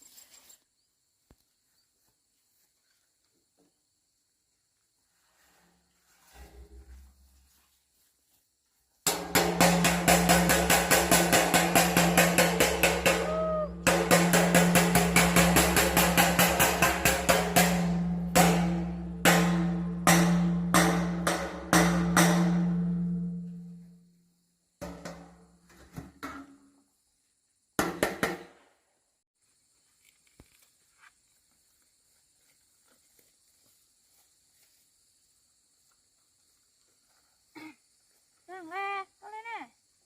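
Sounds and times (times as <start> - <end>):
percussive knocking: 9.1 - 23.2.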